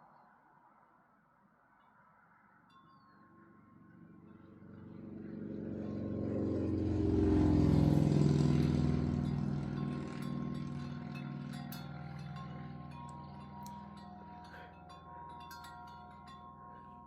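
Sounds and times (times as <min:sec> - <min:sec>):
vehicle engine passing by: 0:04.0 - 0:17.0.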